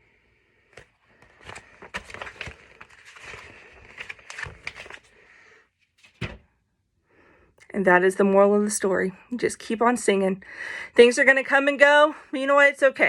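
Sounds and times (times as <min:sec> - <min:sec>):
book pages turning: 0:00.6 - 0:06.5
paper rustling and crackling: 0:00.7 - 0:06.5.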